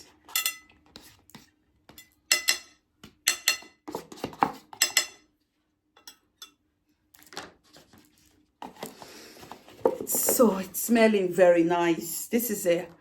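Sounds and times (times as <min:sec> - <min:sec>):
cutlery and dishes clinking: 0:00.2 - 0:00.8, 0:01.9 - 0:03.9, 0:04.7 - 0:05.3, 0:06.0 - 0:06.6.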